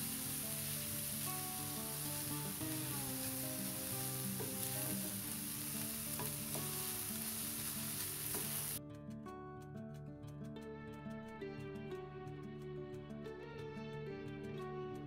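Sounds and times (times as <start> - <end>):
vegetables sizzling in oil: 0.0 - 8.8
soft background music: 0.0 - 15.0.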